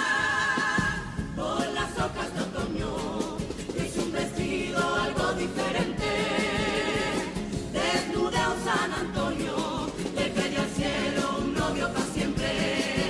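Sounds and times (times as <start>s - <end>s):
choir singing in harmony: 0.0s - 13.0s
steady percussion beat: 0.0s - 13.0s.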